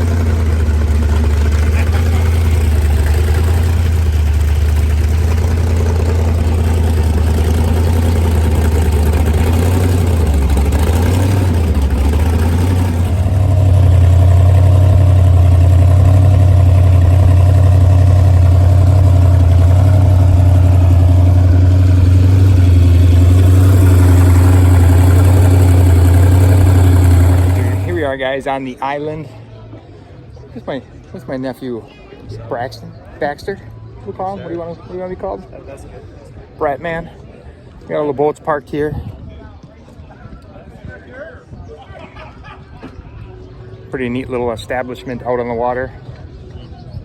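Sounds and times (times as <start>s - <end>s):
boat engine droning: 0.0s - 28.3s.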